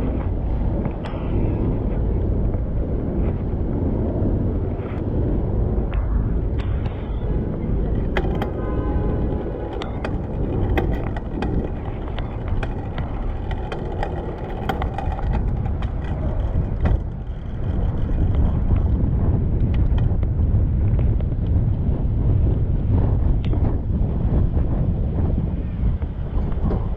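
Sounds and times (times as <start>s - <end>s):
city traffic noise: 0.0s - 26.9s
wind rumbling on microphone: 0.0s - 26.9s
sharp clicks and rattles: 5.9s - 21.2s.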